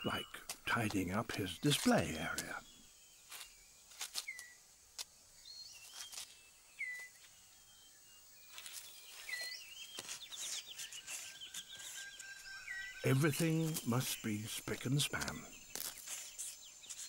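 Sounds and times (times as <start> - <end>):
leaves rustling on forest floor: 3.2 - 7.5, 8.4 - 17.0
whistled bird chirps: 5.4 - 8.0, 9.0 - 14.5.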